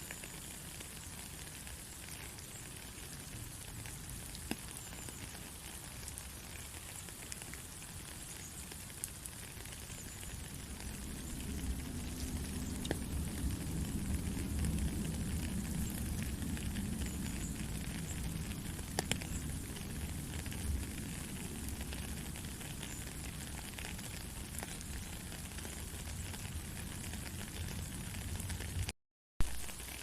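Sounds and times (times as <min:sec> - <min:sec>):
rain pattering: 0:00.0 - 0:30.0
low rumble: 0:10.4 - 0:18.7.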